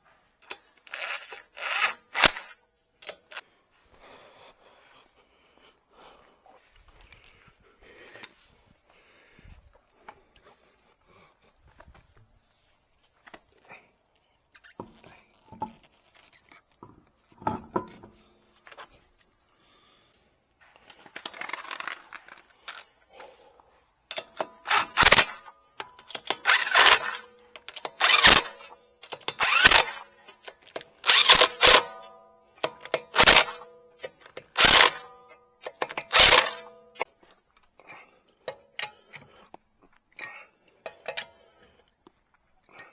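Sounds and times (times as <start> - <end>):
tool scraping metal: 0.9 - 3.4, 24.2 - 25.5, 26.1 - 32.1, 34.4 - 35.1, 35.7 - 36.8.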